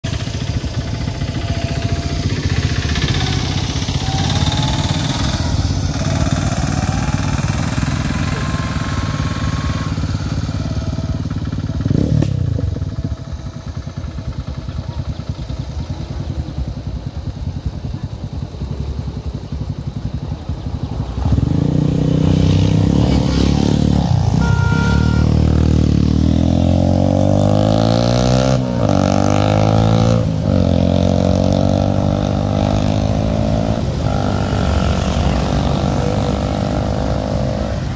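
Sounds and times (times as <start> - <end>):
engine revving: 0.0 - 13.0, 21.1 - 37.9
small engines idling: 0.0 - 37.9.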